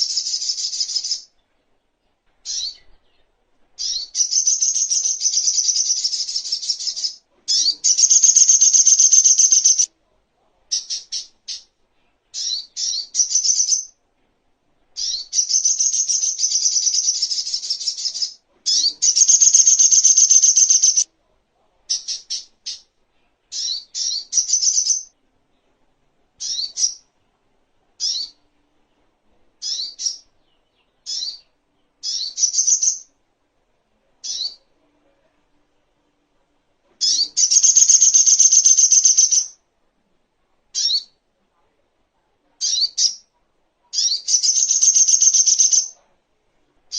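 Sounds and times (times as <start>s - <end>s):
bird rapid trills: 19.0s - 21.0s.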